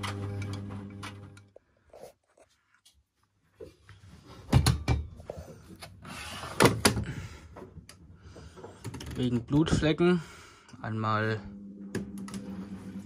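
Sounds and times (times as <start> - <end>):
washing machine clatter and knocks: 4.5 - 5.2.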